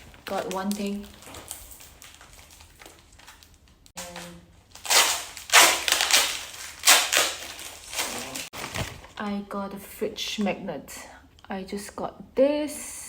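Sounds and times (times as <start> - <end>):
wrapping paper rustling and crinkling: 0.0 - 9.2.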